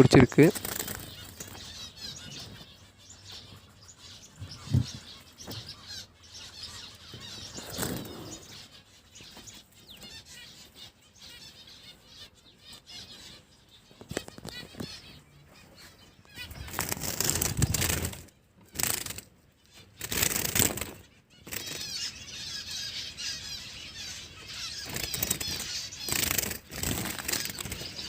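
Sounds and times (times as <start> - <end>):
finches chirping: 0.0 - 28.0
wings fluttering: 0.1 - 3.6, 7.0 - 10.4, 13.9 - 22.2, 24.5 - 28.0.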